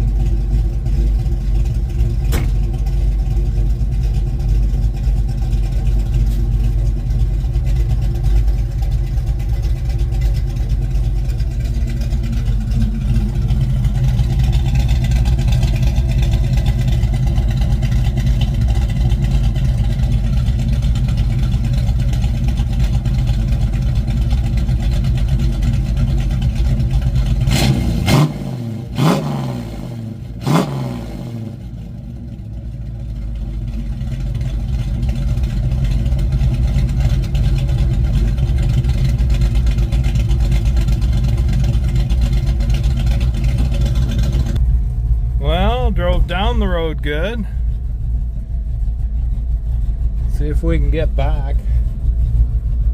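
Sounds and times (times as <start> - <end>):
car engine running: 0.0 - 52.9
sharp exhaust pops: 2.0 - 3.1.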